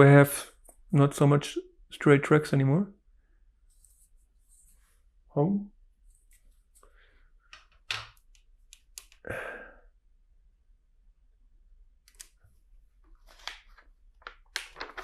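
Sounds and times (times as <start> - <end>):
plastic track pieces clicking: 12.1 - 12.4
plastic pieces rustling: 14.2 - 15.0.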